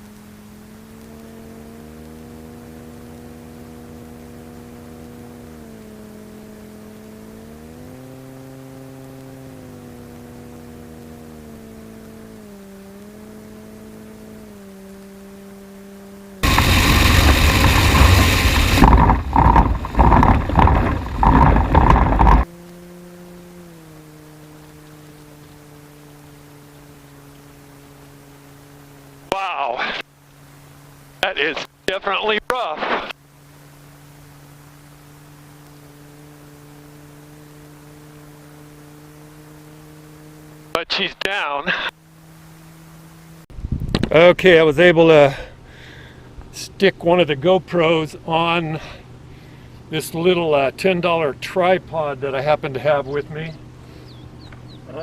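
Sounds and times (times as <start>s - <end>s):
airplane engine droning: 0.0s - 55.0s
hard landing rumble and banging: 16.4s - 22.4s.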